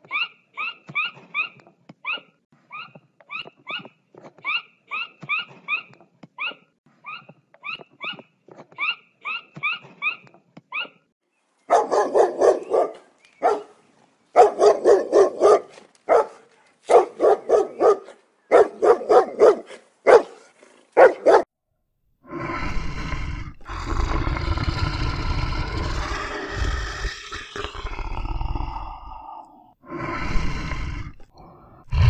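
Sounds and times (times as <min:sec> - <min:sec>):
dog barking: 0:11.7 - 0:13.8, 0:14.4 - 0:21.5
lion growling: 0:22.2 - 0:32.0.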